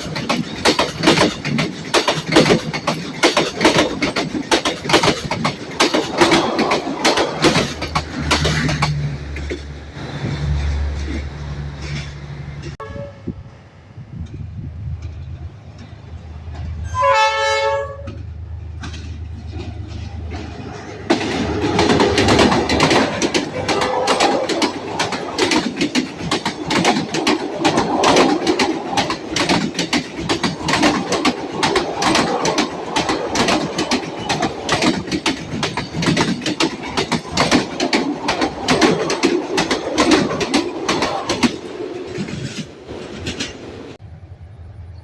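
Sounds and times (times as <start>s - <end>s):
train wheels clattering over rails: 0.0s - 12.8s, 18.0s - 44.0s
train horn blast: 12.6s - 13.6s, 16.8s - 18.2s, 23.5s - 24.5s
low engine rumble: 43.7s - 45.0s.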